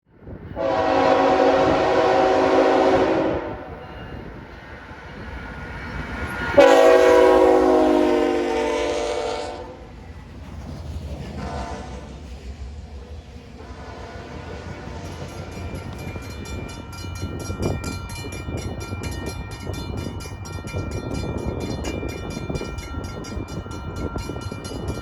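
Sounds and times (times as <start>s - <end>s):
low rumble of train: 0.0s - 25.0s
locomotive air horn blasts: 0.6s - 3.8s, 6.6s - 9.8s, 11.4s - 12.0s, 13.6s - 14.8s.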